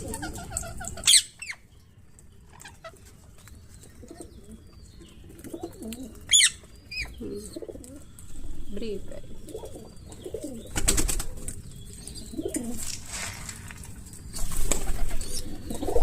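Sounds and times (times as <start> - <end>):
pigeons cooing: 0.0 - 1.4, 3.8 - 13.0, 14.4 - 16.0.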